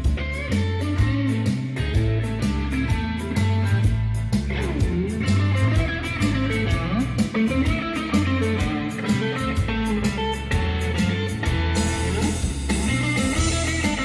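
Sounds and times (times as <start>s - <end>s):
bass line: 0.0s - 14.0s
electric guitar bending notes: 0.0s - 14.0s
steady drum beat: 0.0s - 14.0s.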